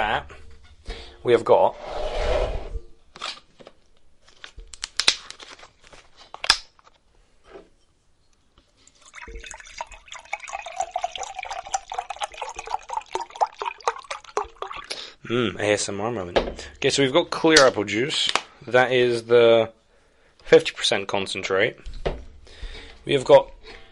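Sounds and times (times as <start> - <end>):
plastic bottle clicks and crinkles: 3.2 - 7.0
juice pouring into a cup: 8.8 - 15.2.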